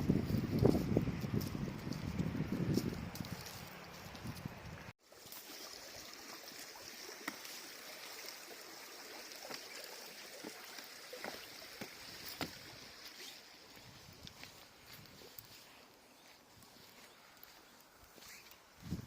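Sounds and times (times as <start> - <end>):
river water flowing: 5.0 - 18.3.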